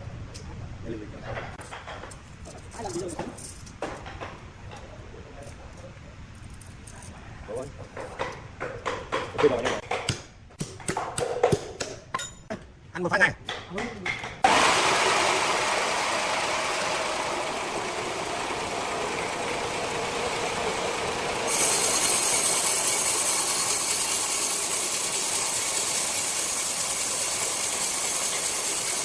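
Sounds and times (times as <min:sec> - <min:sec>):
circular saw cutting wood: 0:14.4 - 0:29.0.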